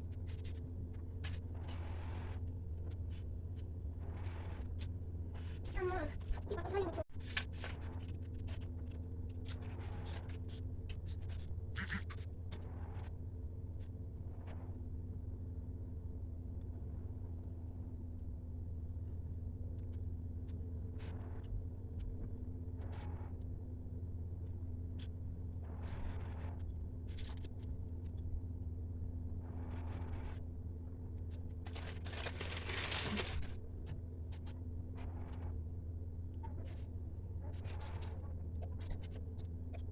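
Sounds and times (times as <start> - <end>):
steady low hum: 0.0 - 39.9
paper rustling and scratching: 0.1 - 2.2, 4.1 - 11.5, 31.3 - 34.5, 37.5 - 38.2
paper rustling and crinkling: 7.1 - 11.4, 31.4 - 33.6.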